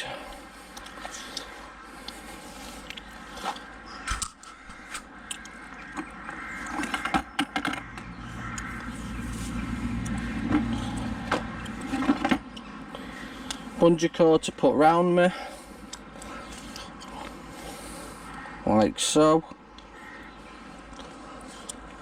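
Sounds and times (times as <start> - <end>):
low rumble: 7.8 - 13.8.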